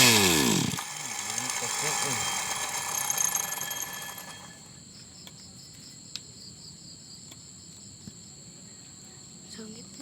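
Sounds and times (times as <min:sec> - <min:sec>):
small motor running: 0:00.0 - 0:04.7
crickets chirping: 0:01.5 - 0:10.0.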